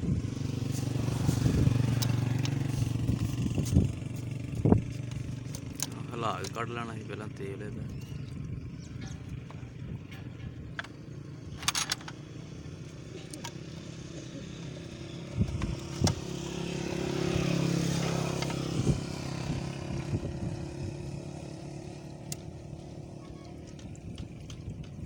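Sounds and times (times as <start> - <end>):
vehicle engine passing by: 0.0 - 10.1, 12.3 - 25.0.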